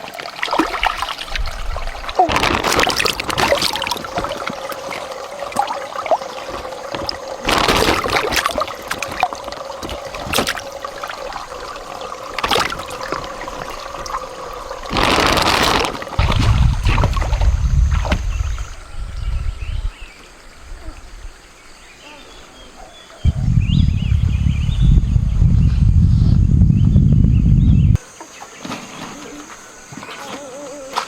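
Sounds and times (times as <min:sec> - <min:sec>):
water rushing: 0:00.0 - 0:21.8
water trickling and splashing: 0:00.0 - 0:23.2
low rumble: 0:23.2 - 0:28.0.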